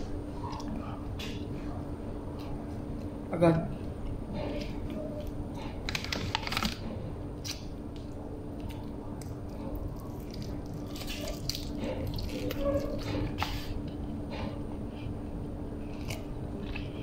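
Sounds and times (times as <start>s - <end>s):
person chewing food: 3.8s - 17.0s.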